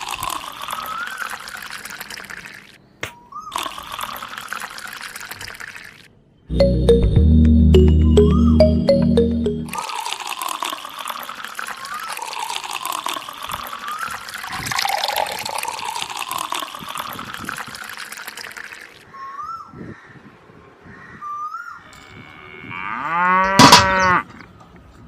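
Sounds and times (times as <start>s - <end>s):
water pouring and splashing: 0.0s - 2.8s, 3.5s - 6.1s, 9.7s - 19.1s.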